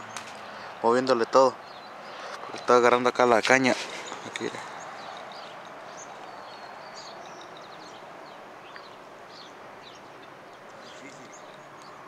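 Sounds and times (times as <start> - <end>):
high bird chirps: 3.9 - 12.0.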